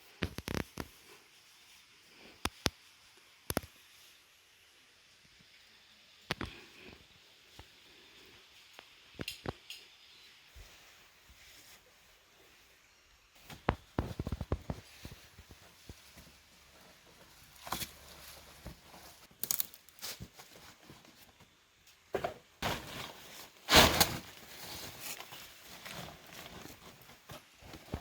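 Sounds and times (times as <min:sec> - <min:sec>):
rustling and crunching: 0:13.4 - 0:28.0.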